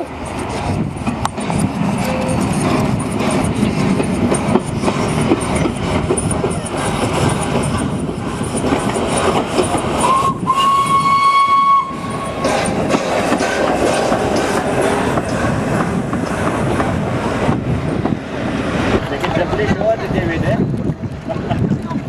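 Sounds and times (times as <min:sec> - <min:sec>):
steam locomotive running: 0:00.0 - 0:22.0
wheels clattering on rail: 0:00.0 - 0:22.0
steam whistle: 0:10.0 - 0:12.7.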